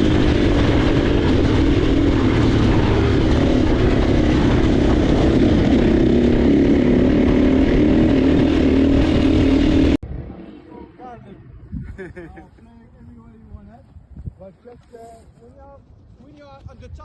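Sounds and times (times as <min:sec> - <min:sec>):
motocross bike engine running: 0:00.0 - 0:10.4.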